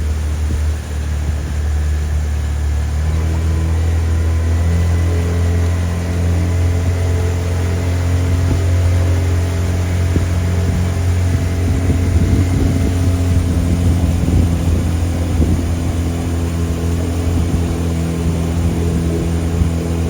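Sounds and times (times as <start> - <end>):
boat engine drone: 0.0 - 20.0.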